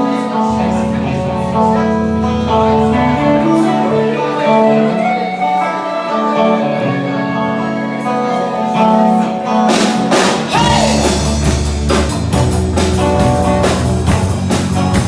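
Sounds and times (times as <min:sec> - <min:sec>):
steady bass line: 0:00.0 - 0:04.2, 0:10.5 - 0:15.0
guitar playing chords: 0:00.0 - 0:15.0.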